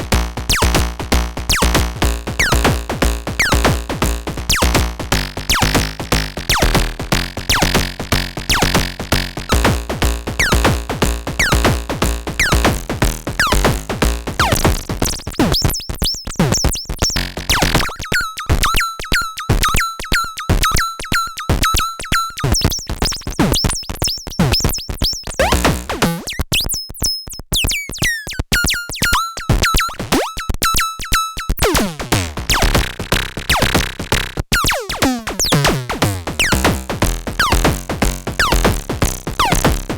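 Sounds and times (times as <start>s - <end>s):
electronic drum pattern: 0.0s - 26.4s, 28.6s - 39.9s
pinging tones with falling sweeps: 17.6s - 22.9s.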